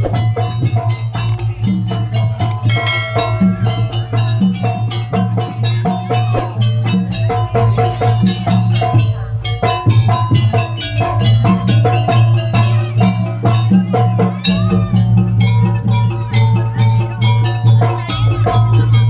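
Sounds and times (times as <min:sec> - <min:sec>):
drums: 0:00.0 - 0:19.0
tuned metal percussion: 0:00.0 - 0:19.0
steady low drone: 0:02.4 - 0:05.1.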